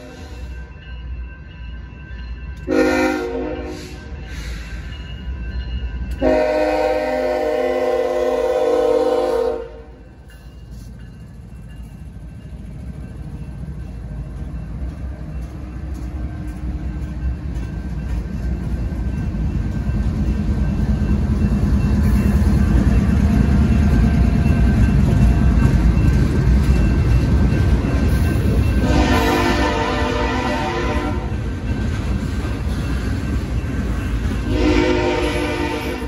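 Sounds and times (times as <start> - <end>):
crossing bell ringing: 0.0 - 8.8, 9.4 - 36.0
diesel locomotives rumbling: 0.0 - 36.0
train horn: 2.6 - 4.0, 6.2 - 10.0, 28.8 - 31.4, 34.4 - 36.0.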